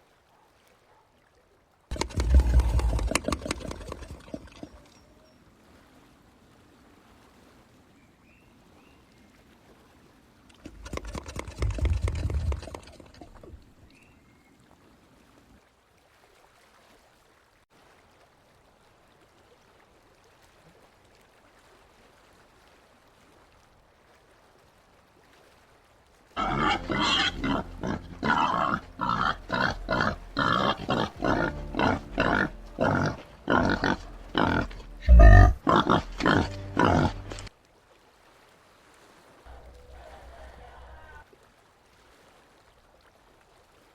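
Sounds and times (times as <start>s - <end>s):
peccary grunting: 1.9s - 4.8s, 26.4s - 37.5s.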